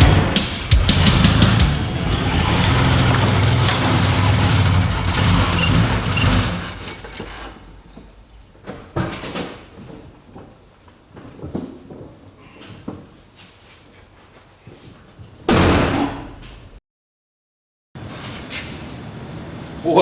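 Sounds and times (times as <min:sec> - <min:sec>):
car engine running loudly: 0:00.3 - 0:06.9.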